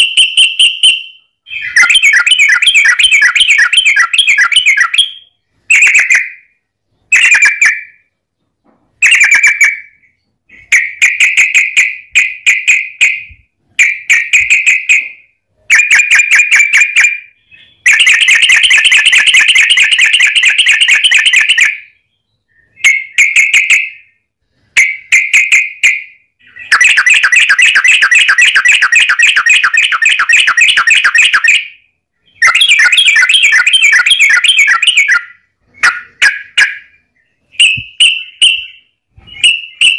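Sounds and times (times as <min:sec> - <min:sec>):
bulbul chattering trill: 0:00.0 - 0:05.2, 0:32.4 - 0:36.9.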